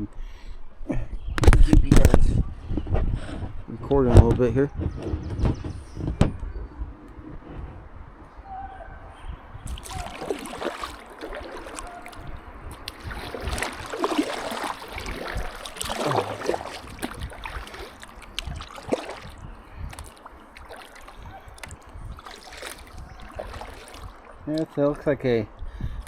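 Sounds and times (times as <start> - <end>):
paddle splashing in water: 9.7 - 24.6
water washing: 9.7 - 24.7.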